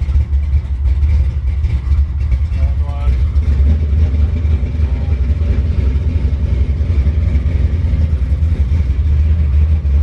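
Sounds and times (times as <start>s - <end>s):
engine rumbling steadily: 0.0s - 10.0s.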